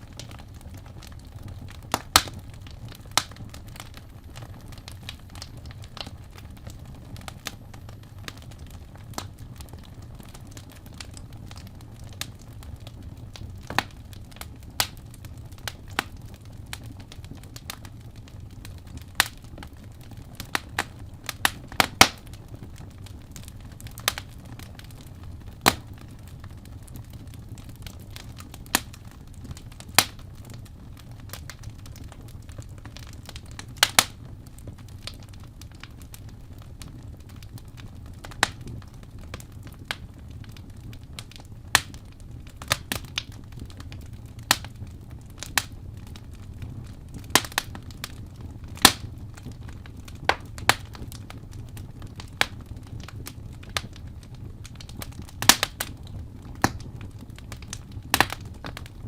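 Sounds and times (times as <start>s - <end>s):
low rumble of fire: 0.0s - 59.0s
wood fire crackling and popping: 0.0s - 59.0s.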